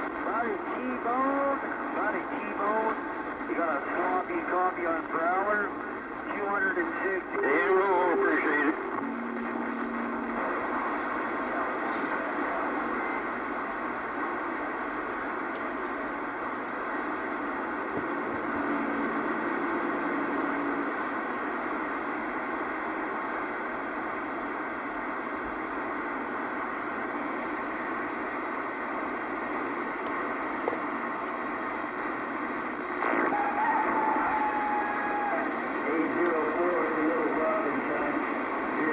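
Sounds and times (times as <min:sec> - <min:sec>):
radio static hiss: 0:00.0 - 0:38.9
faint steady tone: 0:03.4 - 0:17.8.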